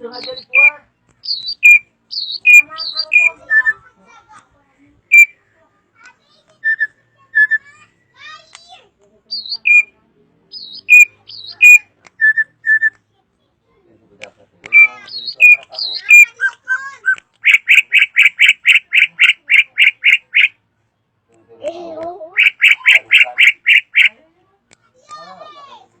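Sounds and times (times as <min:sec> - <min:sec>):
bird singing whistled notes: 0:00.1 - 0:03.8, 0:05.1 - 0:05.4, 0:06.6 - 0:07.8, 0:09.3 - 0:09.9, 0:10.5 - 0:13.0, 0:14.7 - 0:16.3, 0:17.4 - 0:20.5, 0:22.4 - 0:24.2.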